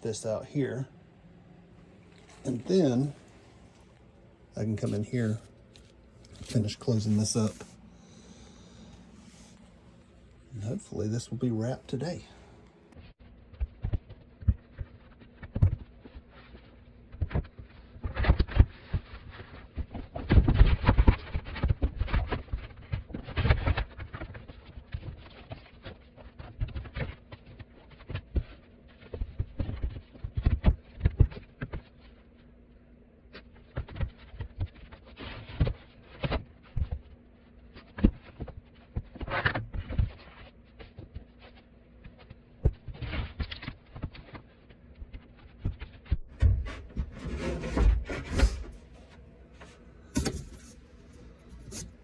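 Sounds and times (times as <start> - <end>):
faint steady hum: 0.0 - 13.6, 32.0 - 52.0
carpentry knocks and thumps: 46.4 - 49.1, 50.1 - 50.8.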